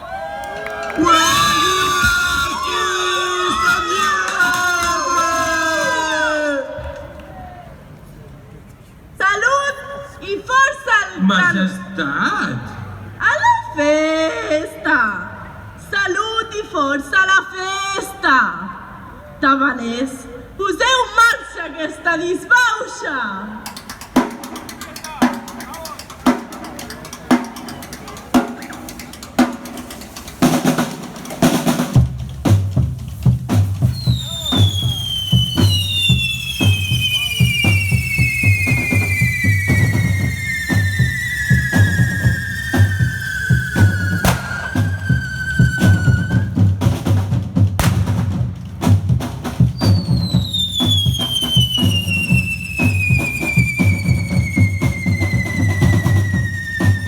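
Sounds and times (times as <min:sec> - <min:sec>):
drums beating: 0:00.0 - 0:06.0, 0:23.6 - 0:57.0
sharp crack: 0:23.7 - 0:47.2, 0:47.8 - 0:54.6
high whistling tone: 0:33.9 - 0:46.8, 0:49.8 - 0:57.0.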